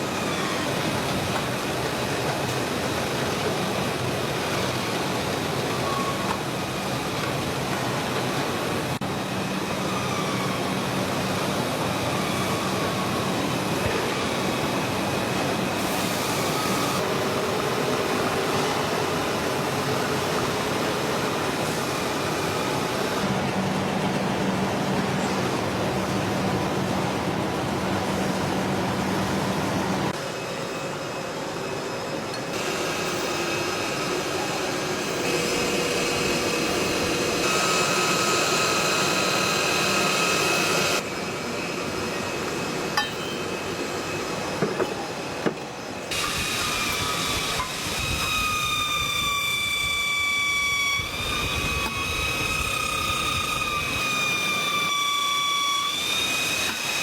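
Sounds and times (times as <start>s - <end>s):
factory machinery running: 0.0s - 57.0s
high machine whine: 0.0s - 57.0s.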